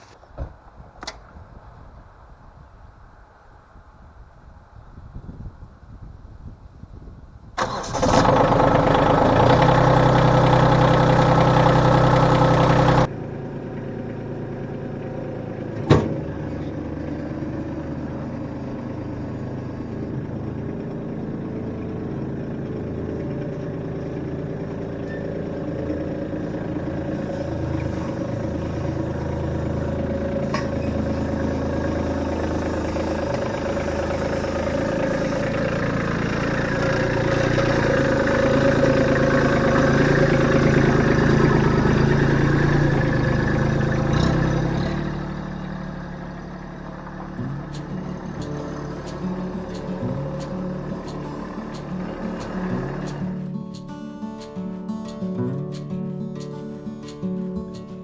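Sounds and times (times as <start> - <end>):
engine starting and running: 7.4 - 58.0
engine idling: 7.6 - 58.0
sharp click: 47.4 - 58.0.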